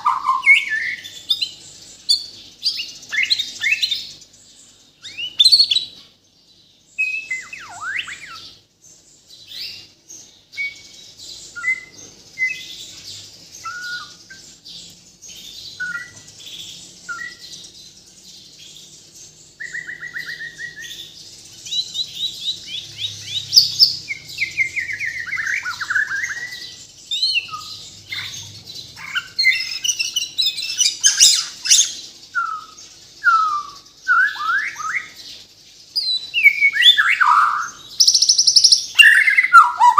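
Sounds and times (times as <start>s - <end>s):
songbird singing whistled notes: 0.0s - 39.9s
bird rapid chattering notes: 36.8s - 39.9s.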